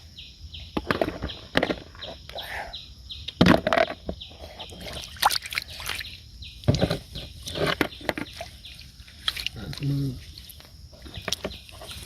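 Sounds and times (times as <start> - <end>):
water sloshing and splashing: 3.5 - 12.0.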